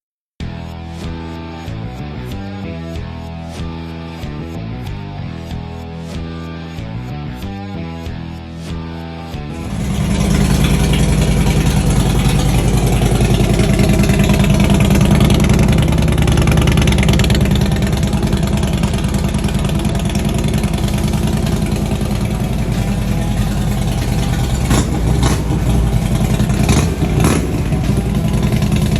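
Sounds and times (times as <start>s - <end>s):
motorcycle engine idling: 9.5s - 28.9s.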